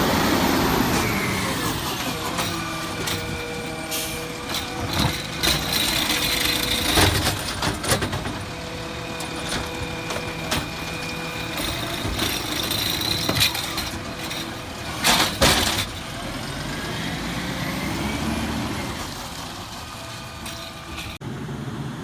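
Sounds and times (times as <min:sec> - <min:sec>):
garbage truck running: 0:00.0 - 0:22.0
metallic clanks: 0:00.9 - 0:16.4.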